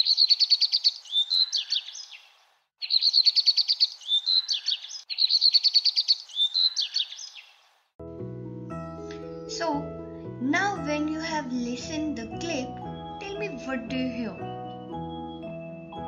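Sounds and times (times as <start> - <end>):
songbird singing: 0.0 - 7.9.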